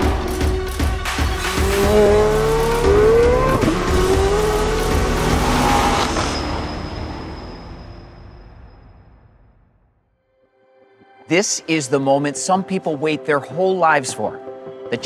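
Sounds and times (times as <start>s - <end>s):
music: 0.0s - 15.0s
car engine revving: 1.0s - 7.8s.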